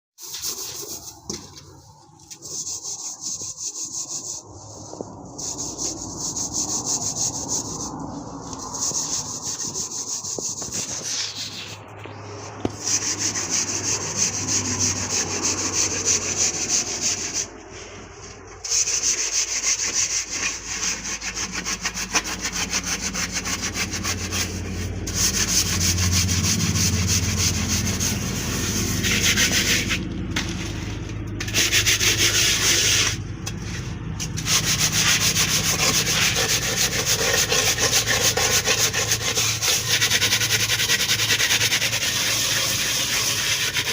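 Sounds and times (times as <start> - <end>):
rapid scraping and rubbing: 0.2 - 43.9.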